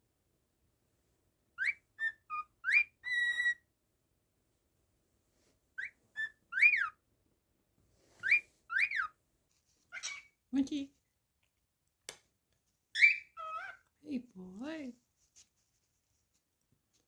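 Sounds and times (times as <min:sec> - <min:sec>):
cockatiel whistling a tune: 0:01.6 - 0:03.6, 0:05.8 - 0:07.0, 0:08.2 - 0:09.1, 0:13.0 - 0:13.7.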